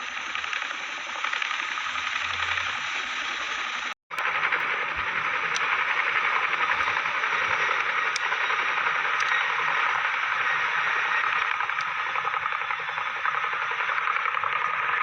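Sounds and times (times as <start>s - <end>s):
helicopter engines and rotors roaring: 0.0s - 15.0s.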